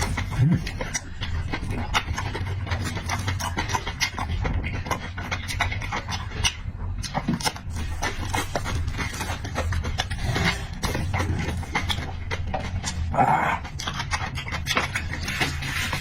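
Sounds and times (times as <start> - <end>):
chewing and lip-smacking: 0.0 - 16.0
steady low hum: 0.0 - 16.0.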